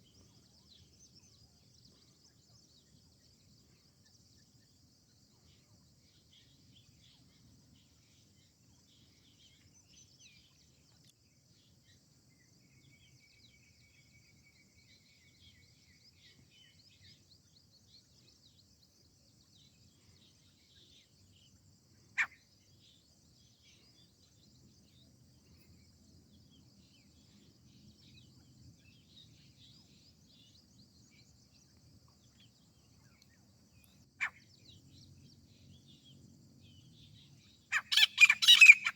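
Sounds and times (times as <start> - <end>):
insect chorus: 0.0 - 38.9
small bird chirps: 19.6 - 25.8, 26.4 - 38.9
sharp bird call: 37.7 - 38.9.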